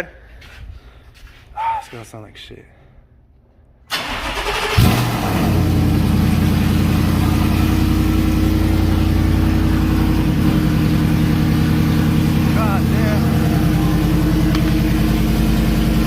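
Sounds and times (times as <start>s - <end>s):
starter motor cranking: 3.9s - 5.4s
loud engine idling: 4.0s - 16.0s.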